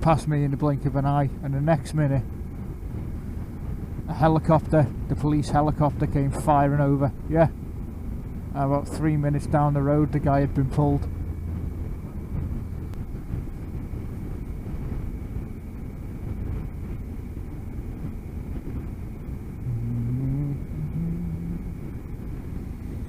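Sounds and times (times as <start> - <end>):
wind and road noise: 0.0 - 23.0
motorcycle engine rumble: 0.7 - 23.0
short rising pitched note: 19.6 - 22.0.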